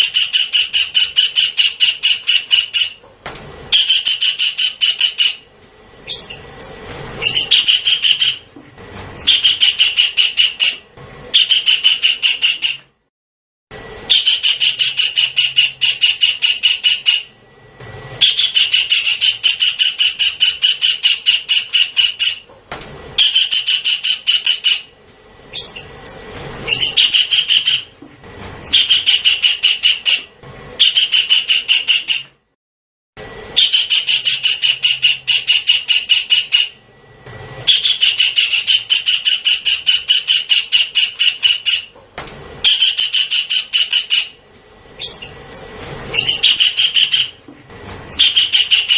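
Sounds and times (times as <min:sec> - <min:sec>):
recorded kingfisher calls: 0:00.0 - 0:03.0, 0:03.7 - 0:05.4, 0:06.1 - 0:08.5, 0:09.2 - 0:12.8, 0:14.1 - 0:17.3, 0:18.2 - 0:22.4, 0:23.2 - 0:24.9, 0:25.5 - 0:27.9, 0:28.6 - 0:32.2, 0:33.6 - 0:36.8, 0:37.7 - 0:41.9, 0:42.6 - 0:44.4, 0:45.0 - 0:47.4, 0:48.1 - 0:48.9.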